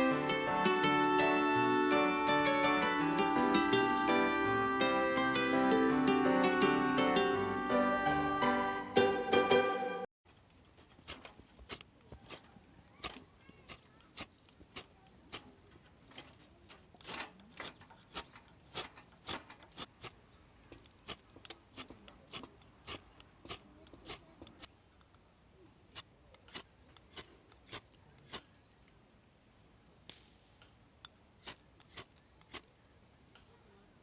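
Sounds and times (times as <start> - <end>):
knife scraping wood: 10.4 - 15.5, 21.1 - 24.7, 25.9 - 28.5, 31.4 - 32.8.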